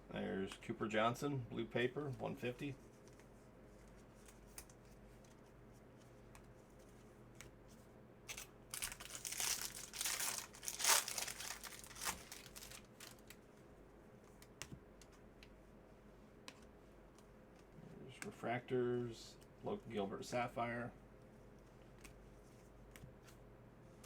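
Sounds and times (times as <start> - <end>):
foil wrapper tearing and crinkling: 8.3 - 13.4.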